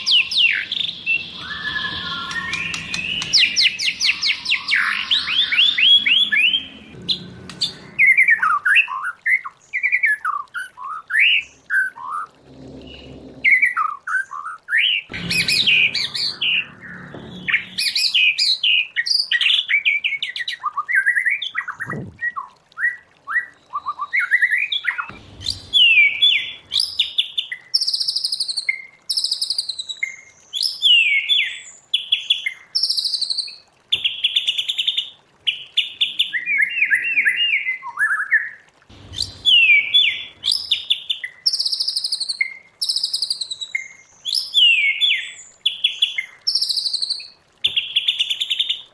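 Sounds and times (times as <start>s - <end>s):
bird singing whistled phrases: 0.0s - 6.8s, 36.0s - 38.6s, 39.2s - 45.4s.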